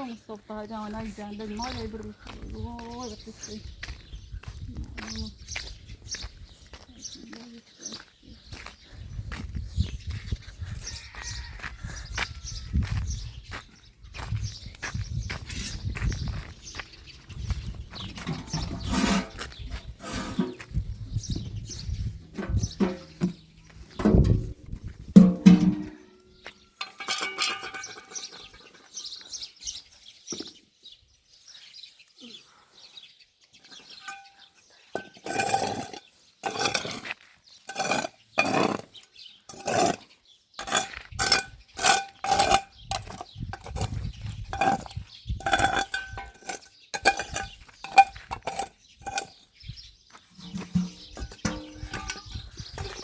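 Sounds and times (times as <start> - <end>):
kitchenware clinking: 26.8 - 28.5, 34.0 - 34.4, 50.4 - 52.3.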